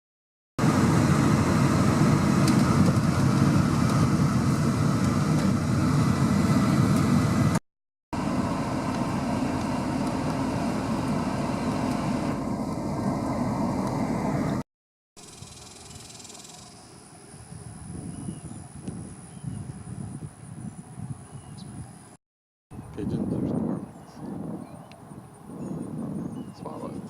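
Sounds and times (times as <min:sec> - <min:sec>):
steady rushing rumble: 0:00.6 - 0:07.6.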